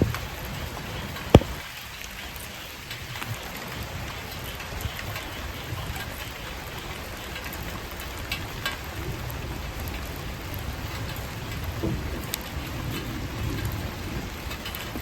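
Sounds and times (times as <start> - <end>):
fire crackling and popping: 1.3 - 1.6.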